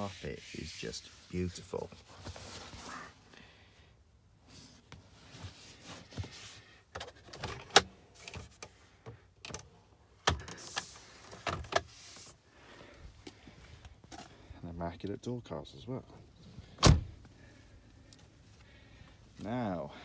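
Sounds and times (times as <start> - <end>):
clicks and taps in car interior: 6.9 - 11.9.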